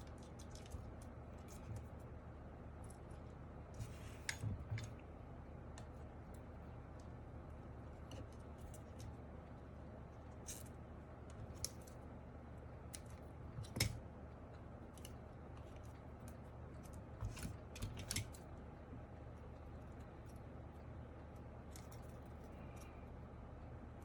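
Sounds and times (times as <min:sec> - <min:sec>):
light clicks and snips: 0:00.0 - 0:02.0.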